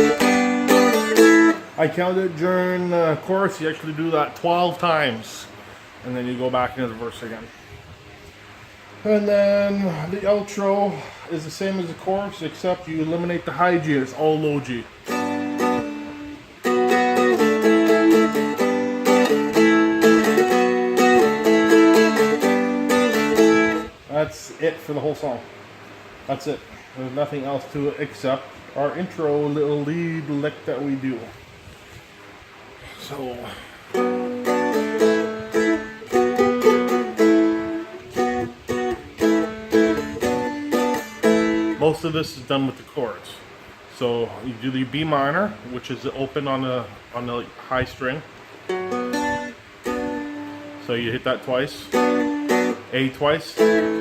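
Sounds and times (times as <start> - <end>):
dulcimer strumming: 0.0 - 1.6, 15.0 - 23.9, 33.9 - 41.9, 48.7 - 51.1, 51.8 - 54.0.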